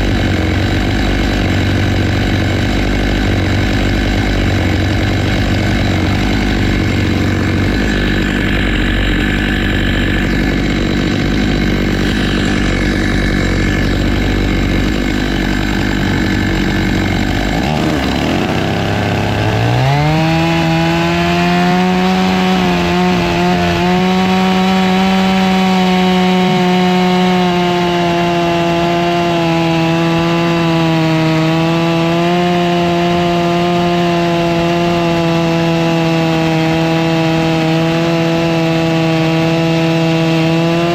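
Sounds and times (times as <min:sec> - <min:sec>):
chainsaw ripping a log: 0:00.0 - 0:40.9.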